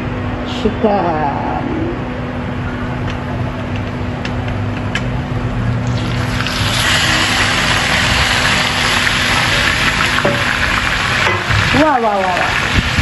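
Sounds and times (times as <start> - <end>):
chicken sizzling in hot oil: 5.8 - 13.0.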